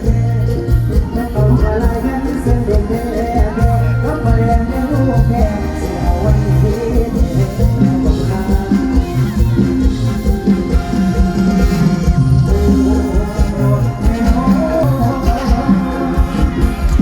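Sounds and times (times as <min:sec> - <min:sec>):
deep bass beat: 0:00.0 - 0:17.0
melodic lead line: 0:00.0 - 0:17.0
person singing: 0:00.0 - 0:17.0.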